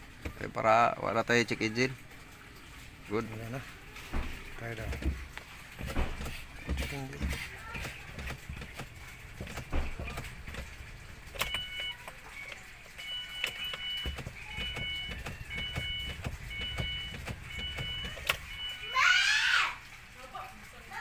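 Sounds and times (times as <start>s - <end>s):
car engine idling: 0.0s - 21.0s
two-tone electronic beeps: 11.3s - 18.9s.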